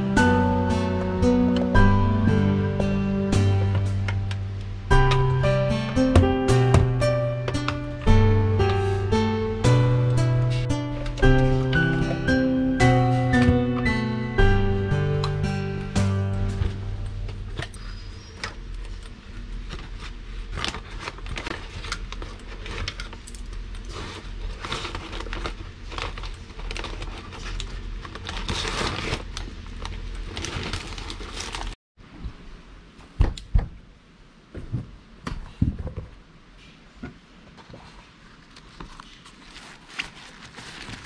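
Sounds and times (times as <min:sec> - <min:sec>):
crinkling and rustling handling: 0:16.5 - 0:31.8, 0:34.6 - 0:41.0.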